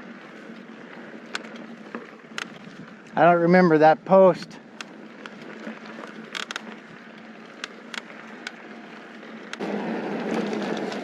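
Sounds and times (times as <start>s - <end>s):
bike clicks and rattles: 0.0s - 11.0s
bike rolling on gravel trail: 0.0s - 11.0s.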